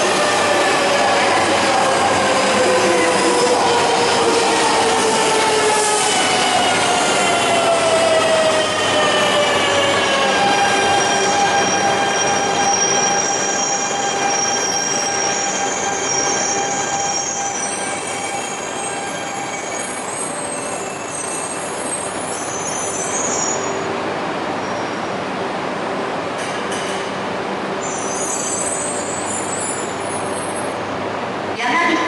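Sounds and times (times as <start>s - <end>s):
wheel and brake squeal: 11.0s - 23.8s, 27.8s - 30.7s.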